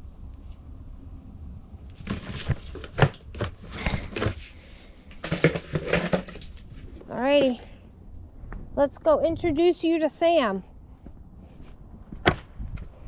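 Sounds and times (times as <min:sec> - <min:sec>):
objects being handled: 0:02.0 - 0:07.6.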